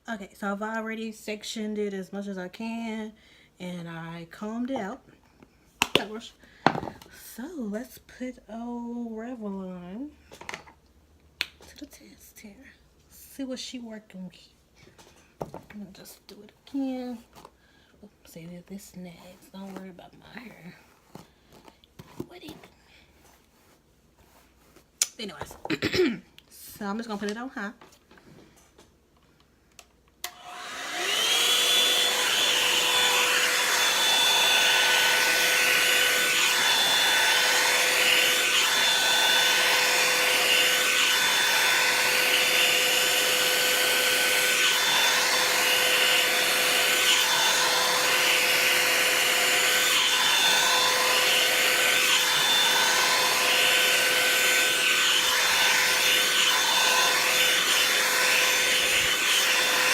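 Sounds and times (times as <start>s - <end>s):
hair dryer spinning up: 5.8s - 7.1s, 30.2s - 59.9s.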